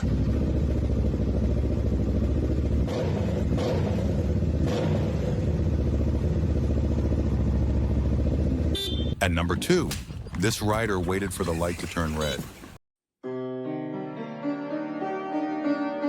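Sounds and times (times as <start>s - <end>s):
motorcycle engine running: 0.0s - 10.3s.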